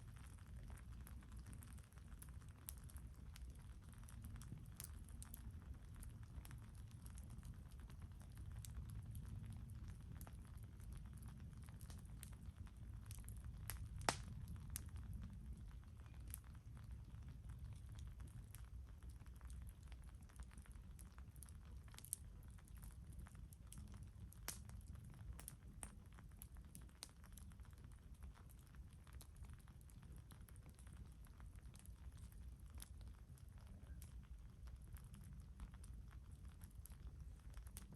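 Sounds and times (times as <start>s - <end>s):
campfire crackling and popping: 0.0s - 37.9s.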